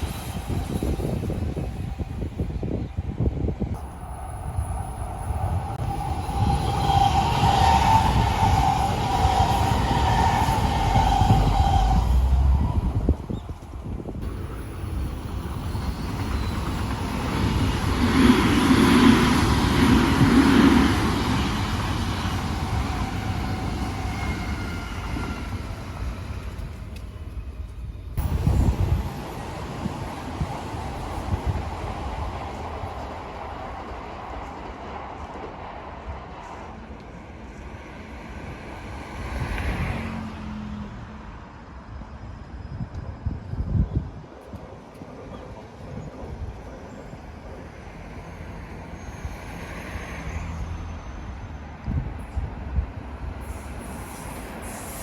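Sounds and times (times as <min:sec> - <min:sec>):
wind buffeting microphone: 0:00.0 - 0:40.2, 0:41.9 - 0:49.4, 0:51.8 - 0:55.0
electric train passing: 0:00.0 - 0:55.0.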